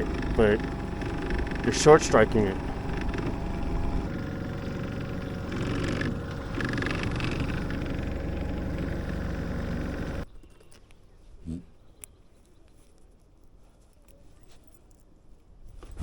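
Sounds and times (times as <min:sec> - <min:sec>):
outboard motor running: 0:00.0 - 0:10.2.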